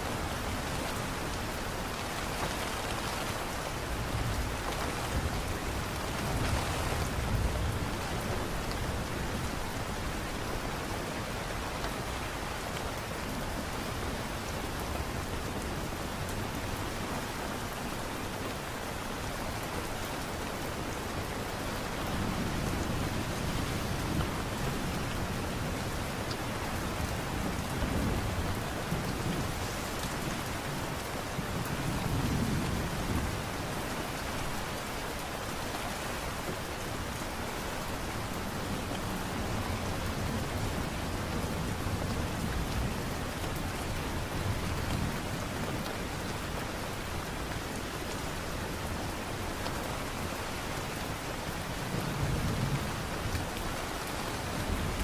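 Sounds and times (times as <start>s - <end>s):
light rain falling: 0.0s - 55.0s.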